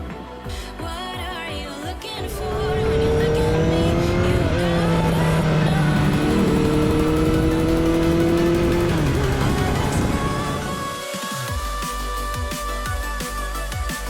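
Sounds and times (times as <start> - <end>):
music: 0.0 - 14.0
vehicle engine accelerating: 2.2 - 11.0.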